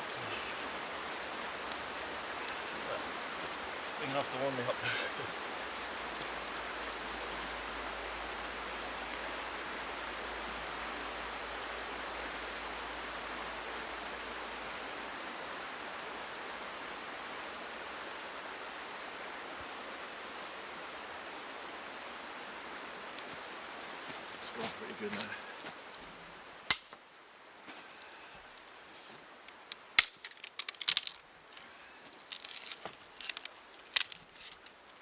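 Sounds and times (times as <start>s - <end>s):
river water rushing: 0.0s - 35.0s.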